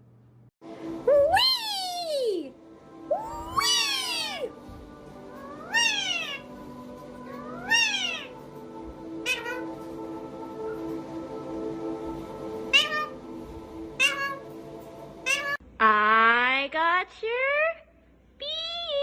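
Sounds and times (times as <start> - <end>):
background music: 0.6 - 15.6
cat meowing: 5.4 - 6.5, 7.3 - 8.4, 9.2 - 9.7, 12.7 - 13.2, 14.0 - 14.4, 15.2 - 15.6.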